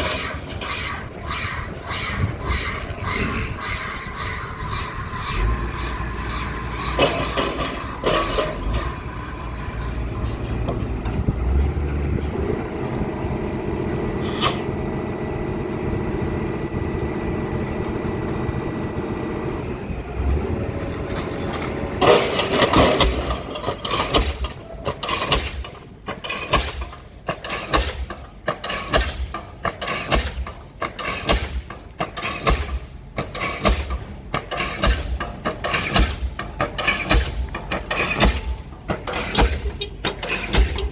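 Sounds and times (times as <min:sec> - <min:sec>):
piling rig engine running: 0:00.0 - 0:40.9
pile hammer striking: 0:26.5 - 0:40.9.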